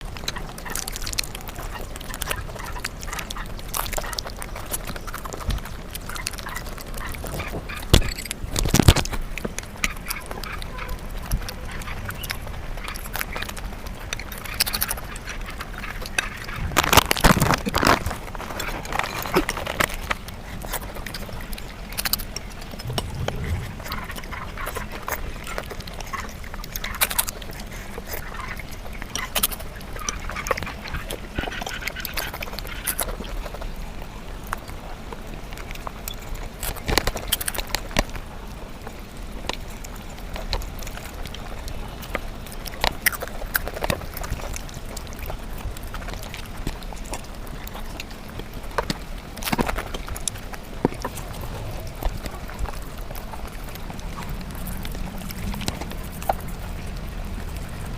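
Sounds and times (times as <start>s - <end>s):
sped-up chewing clicks and smacks: 0.0s - 57.9s.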